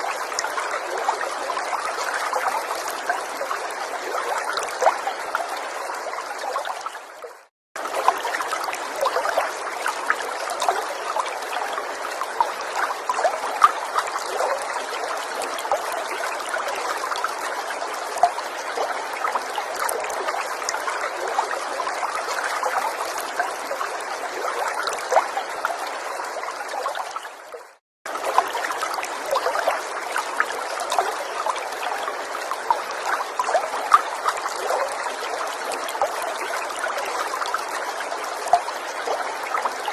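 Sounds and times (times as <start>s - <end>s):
stream babbling over stones: 0.0s - 7.2s, 7.8s - 39.9s.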